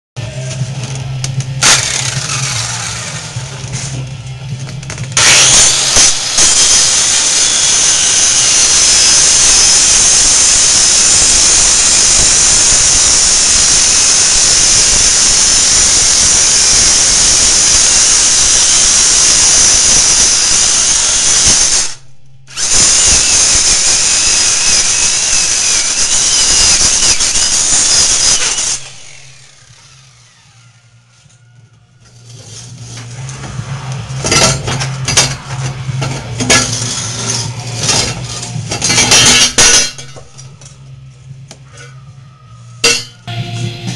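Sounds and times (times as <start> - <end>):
power tool high hissing whine: 1.6 - 3.6, 5.2 - 30.6.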